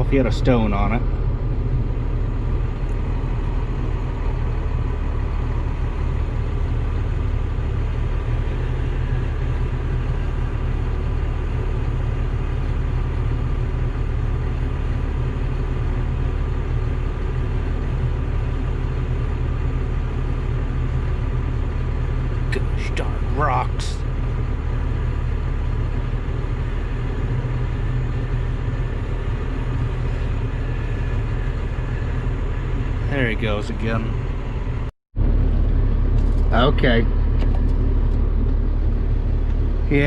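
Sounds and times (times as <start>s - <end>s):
tractor engine idling: 0.0s - 40.0s.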